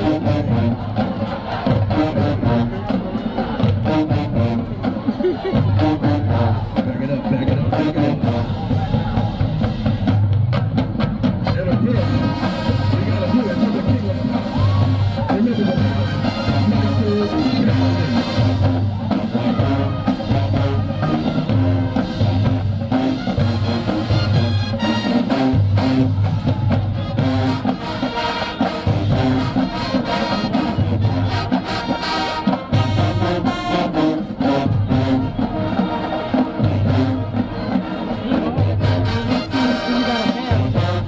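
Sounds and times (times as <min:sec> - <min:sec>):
marching band playing: 0:00.0 - 0:41.0.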